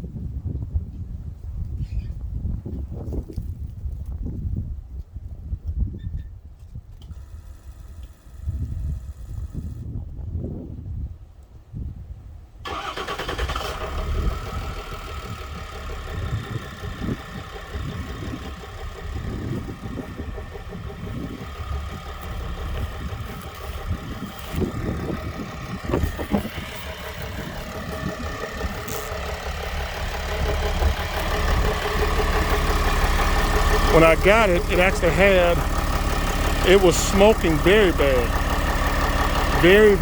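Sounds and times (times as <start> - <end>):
diesel engine starting and idling: 7.1 - 9.9, 12.6 - 40.0.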